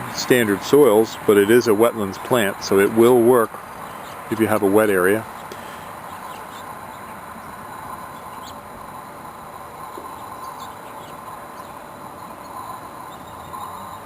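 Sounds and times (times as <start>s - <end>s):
bees humming: 0.2s - 14.0s
faint bird chirps: 5.3s - 8.6s, 9.9s - 14.0s.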